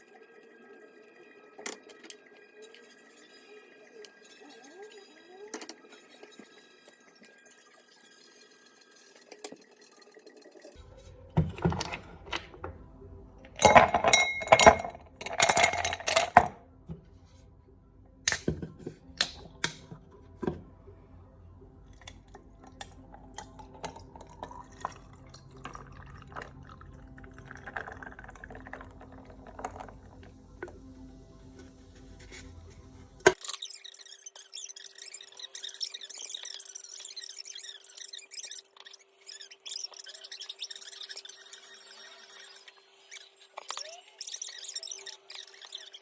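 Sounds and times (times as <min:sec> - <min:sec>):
dishes and cutlery clinking: 0:11.4 - 0:12.7, 0:13.5 - 0:16.6.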